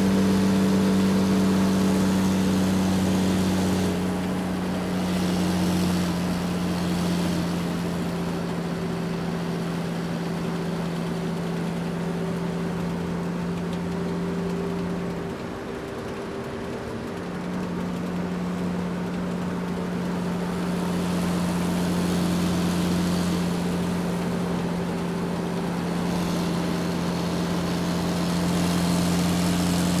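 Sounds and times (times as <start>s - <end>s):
garbage truck engine idling: 0.0s - 11.2s, 17.9s - 30.0s.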